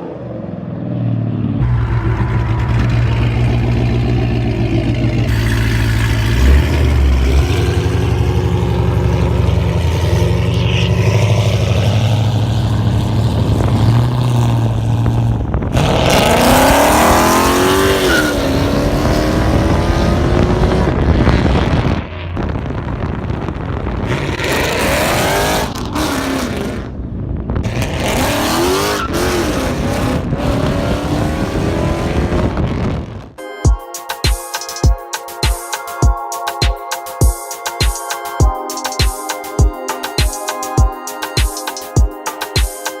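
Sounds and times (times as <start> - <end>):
car engine revving: 0.0 - 32.8.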